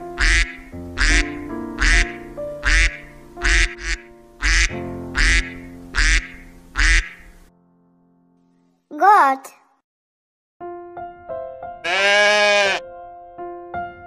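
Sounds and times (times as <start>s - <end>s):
soft background music: 0.0s - 8.6s
duck quacking: 0.2s - 7.4s, 11.8s - 12.8s.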